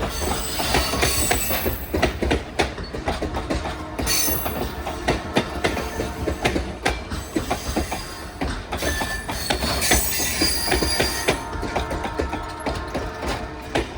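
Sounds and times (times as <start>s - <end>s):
train wheels clacking over rail joints: 0.0s - 13.9s
high wheel squeal: 0.1s - 2.0s, 4.0s - 4.8s, 7.1s - 11.6s.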